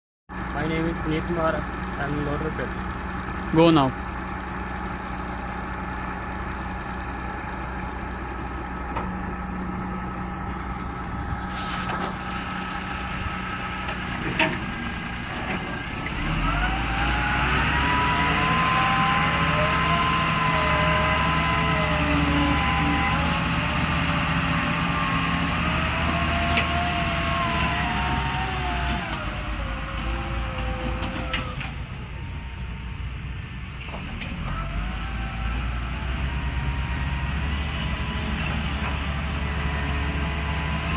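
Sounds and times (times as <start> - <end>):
excavator diesel engine: 0.3 - 40.9
hydraulic whine: 8.4 - 40.9.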